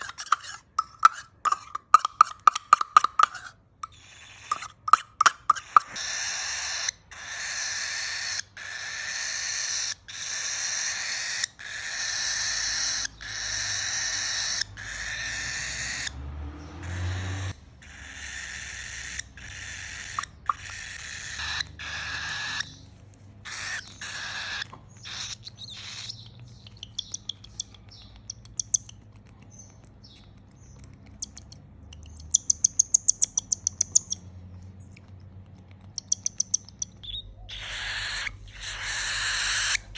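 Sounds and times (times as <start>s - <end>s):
bird clicks and chirps: 0.0s - 6.2s, 19.7s - 22.9s, 23.7s - 39.8s
chick raspy hissing calls: 5.5s - 16.0s, 16.8s - 22.6s, 23.4s - 26.1s, 37.5s - 39.9s.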